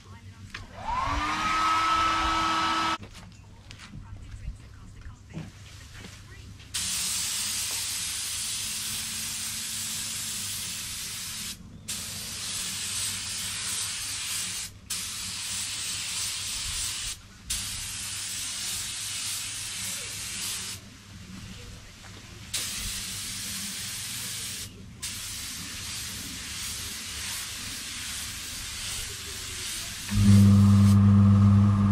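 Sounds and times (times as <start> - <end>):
spray gun hissing: 6.8 - 20.8, 22.5 - 31.1
steady low hum: 30.1 - 31.9.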